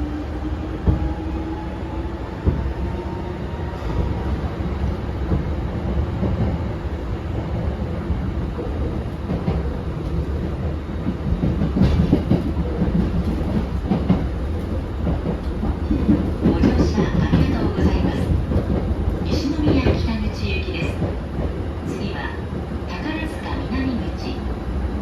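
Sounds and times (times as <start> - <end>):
train wheels rumbling on rails: 0.0 - 25.0
clacks over rail joints: 9.3 - 21.6.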